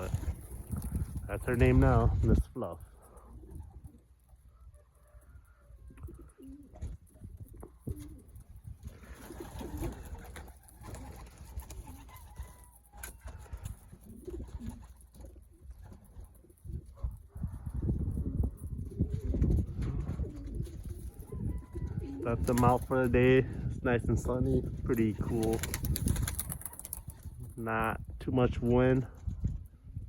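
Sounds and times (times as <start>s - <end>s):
pigeons cooing: 0.0s - 22.9s.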